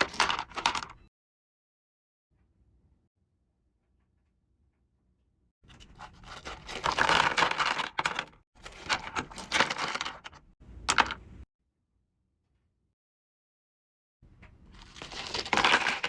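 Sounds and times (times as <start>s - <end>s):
packaging crinkling and tearing: 14.8s - 16.0s.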